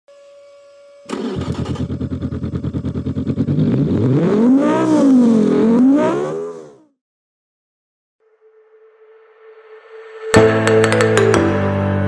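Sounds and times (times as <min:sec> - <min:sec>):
race car engine revving: 0:01.2 - 0:06.9.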